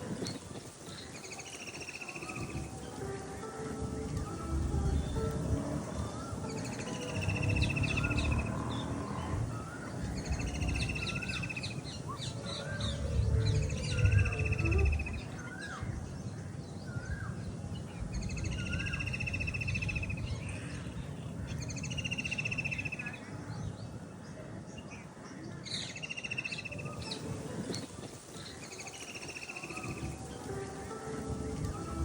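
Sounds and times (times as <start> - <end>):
bird rapid trill: 0.0 - 3.0, 5.9 - 15.7
low background rumble: 2.5 - 21.8.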